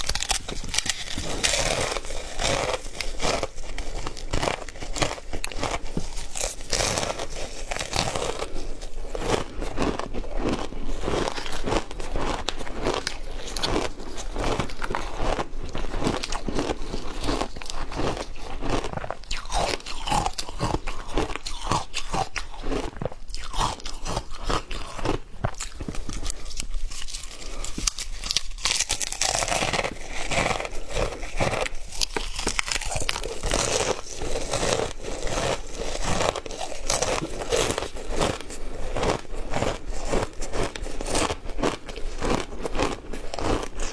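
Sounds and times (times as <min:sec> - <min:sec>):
ice being crunched: 0:00.0 - 0:15.2.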